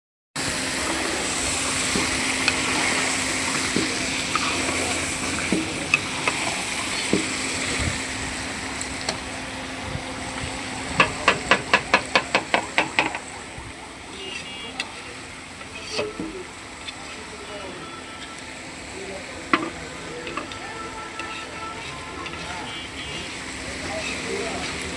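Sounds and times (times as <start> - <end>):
food sizzling in a pan: 0.4 - 9.1, 14.2 - 24.9.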